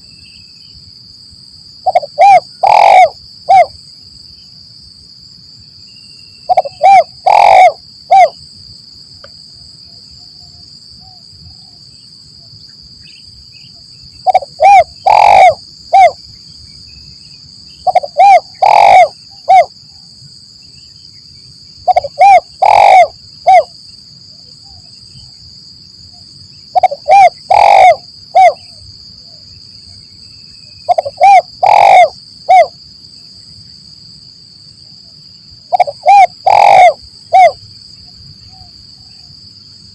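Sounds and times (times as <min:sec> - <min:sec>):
dove cooing: 0:01.8 - 0:03.7, 0:06.5 - 0:08.4, 0:14.2 - 0:16.2, 0:17.8 - 0:19.7, 0:21.8 - 0:23.7, 0:26.7 - 0:28.8, 0:30.9 - 0:32.7, 0:35.7 - 0:37.6.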